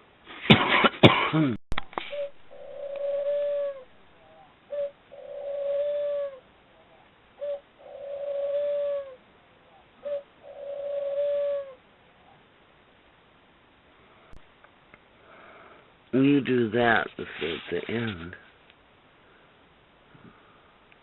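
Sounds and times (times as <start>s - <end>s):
lovebird cooing: 2.0s - 12.4s.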